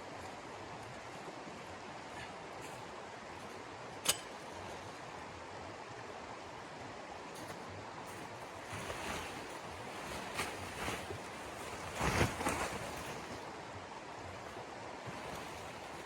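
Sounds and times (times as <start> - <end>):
soft rustles: 7.3 - 13.5, 14.4 - 16.0.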